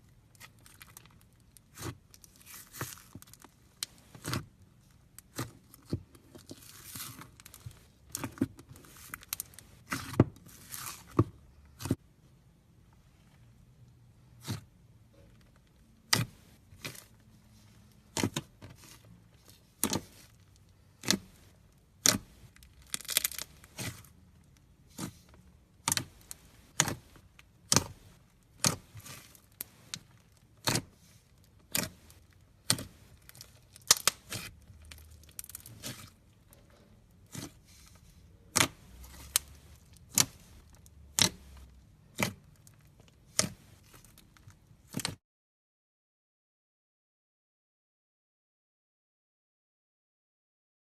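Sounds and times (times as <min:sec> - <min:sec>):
slime crackling: 0:16.1 - 0:45.1
slime crunchy pops: 0:22.9 - 0:24.1.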